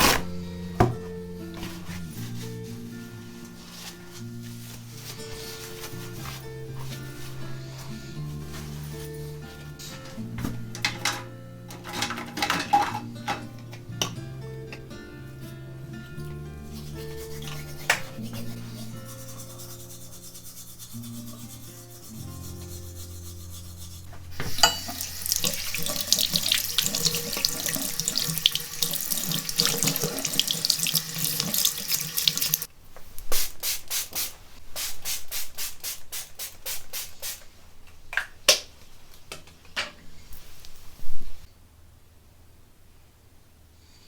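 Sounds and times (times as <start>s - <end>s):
soft background music: 0.0s - 32.6s
tap water running into sink: 24.4s - 32.7s.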